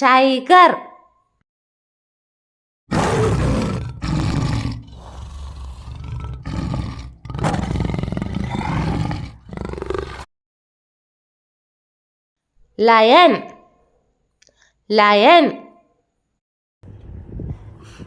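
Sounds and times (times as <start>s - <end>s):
tiger roaring and growling: 2.9s - 10.3s.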